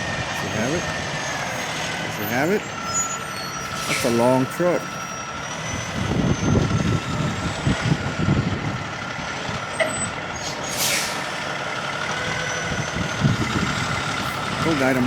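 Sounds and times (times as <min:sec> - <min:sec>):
truck engine running: 0:00.0 - 0:15.0
air hiss: 0:10.4 - 0:11.4.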